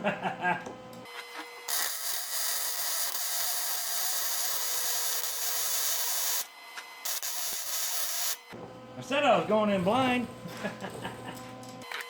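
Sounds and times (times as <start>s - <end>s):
welding arc crackling and hissing: 1.7s - 8.4s.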